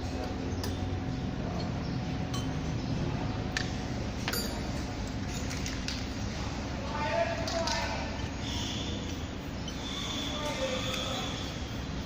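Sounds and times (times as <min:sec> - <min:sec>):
low background noise: 0:00.0 - 0:12.0
metal tools clinking: 0:04.2 - 0:05.8.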